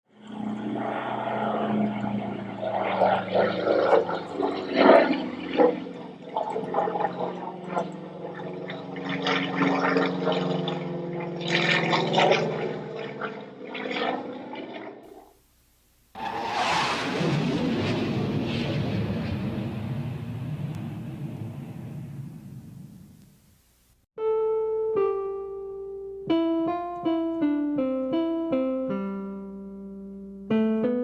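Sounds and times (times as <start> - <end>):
light aircraft engine droning: 0.1 - 13.3, 16.2 - 23.6.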